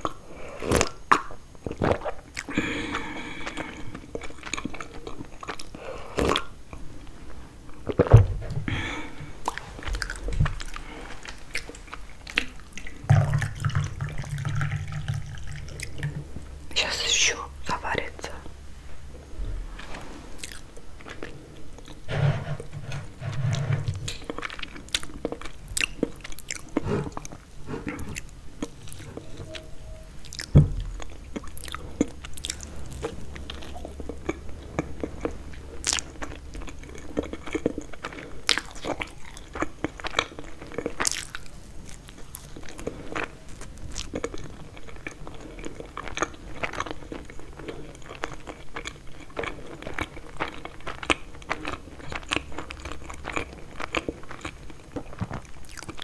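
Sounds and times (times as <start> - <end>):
crunchy pastry chewing: 0.0 - 8.1, 8.7 - 16.6, 20.3 - 56.0.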